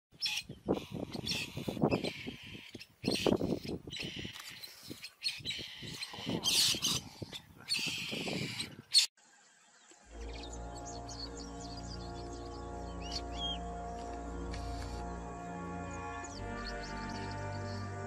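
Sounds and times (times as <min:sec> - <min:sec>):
birds calling: 0:00.1 - 0:18.0.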